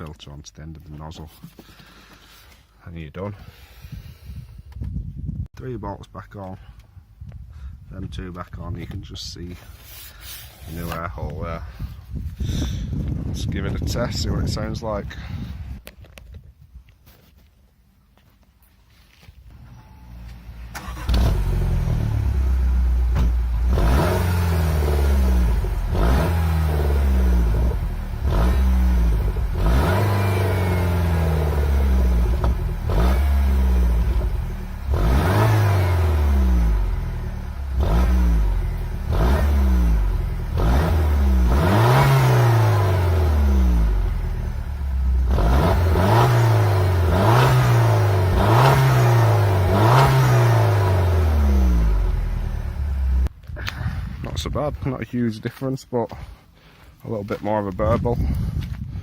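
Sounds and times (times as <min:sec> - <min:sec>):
car engine revving: 0:20.4 - 0:53.3.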